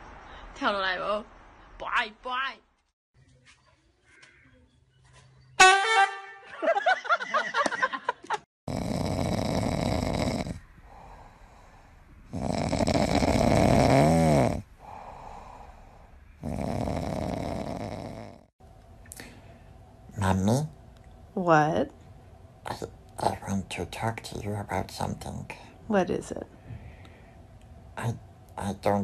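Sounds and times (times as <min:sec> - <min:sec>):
loud snoring: 0:08.7 - 0:18.5.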